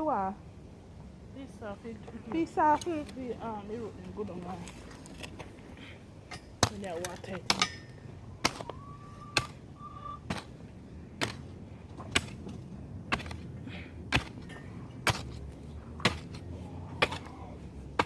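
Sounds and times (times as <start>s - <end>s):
hand tool chopping into ground: 8.4s - 8.7s, 9.4s - 9.6s, 10.3s - 10.5s, 11.2s - 13.5s, 14.1s - 18.0s.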